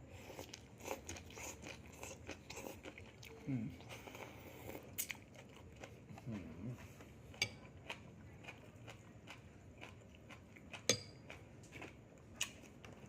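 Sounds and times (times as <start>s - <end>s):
low murmur of voice: 3.3s - 3.9s.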